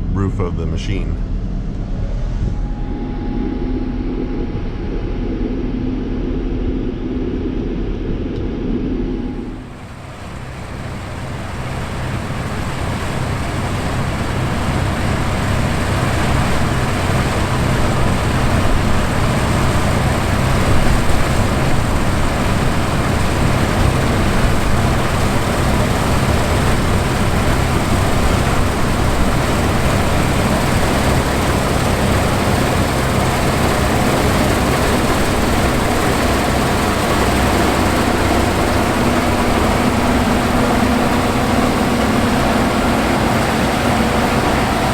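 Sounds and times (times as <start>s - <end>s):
steady tone: 0.0s - 10.8s, 24.4s - 44.9s
combine harvester engine drone: 0.0s - 44.9s.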